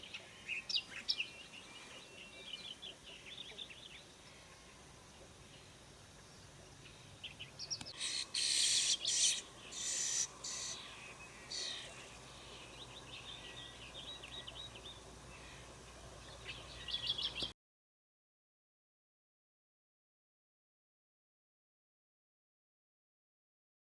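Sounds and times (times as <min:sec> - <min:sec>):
bird chick harsh hissing calls: 0:08.0 - 0:10.9.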